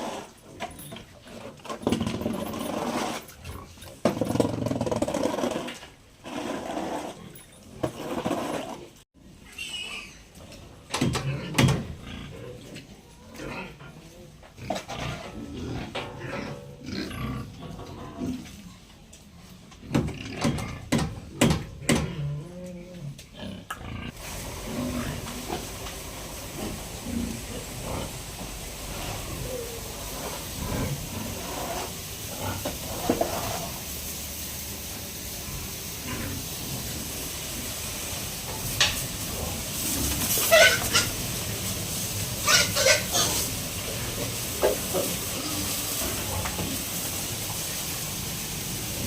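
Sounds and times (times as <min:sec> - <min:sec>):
pigs grunting: 0:09.8 - 0:18.6, 0:19.8 - 0:25.5, 0:26.6 - 0:28.2, 0:28.8 - 0:33.8
steady hiss: 0:24.0 - 0:49.0.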